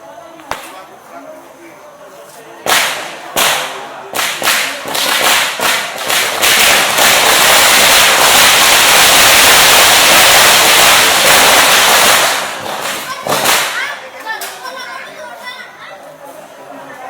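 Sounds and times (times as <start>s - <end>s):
firecrackers banging and crackling: 0.4s - 0.9s, 2.6s - 14.7s.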